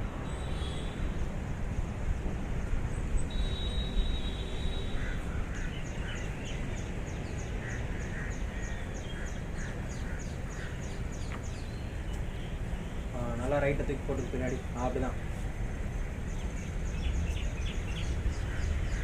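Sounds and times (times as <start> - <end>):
bird chirping: 16.2 - 19.0.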